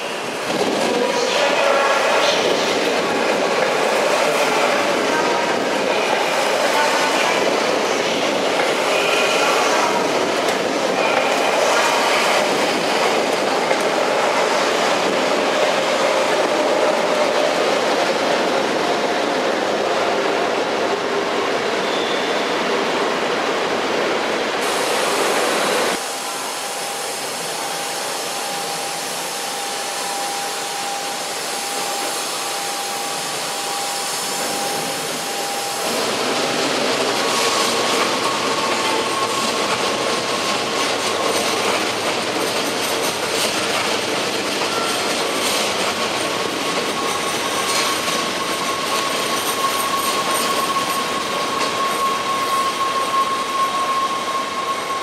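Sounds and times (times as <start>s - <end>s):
train rolling past: 0.0s - 55.0s.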